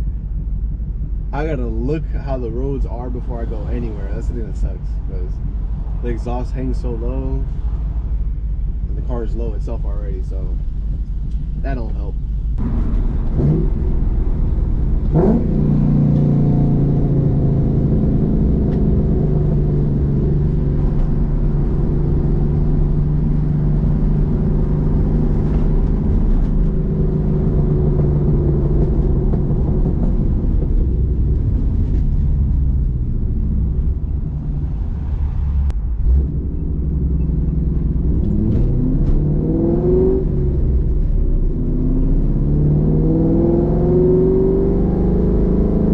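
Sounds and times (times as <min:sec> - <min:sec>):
car engine droning and revving: 0:00.0 - 0:45.9.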